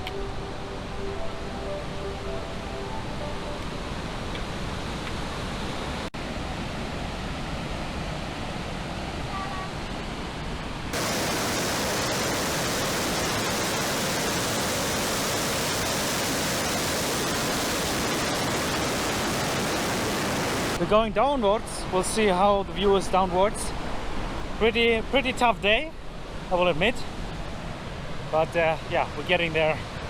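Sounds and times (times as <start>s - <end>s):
waterfall roaring: 11.0s - 20.9s.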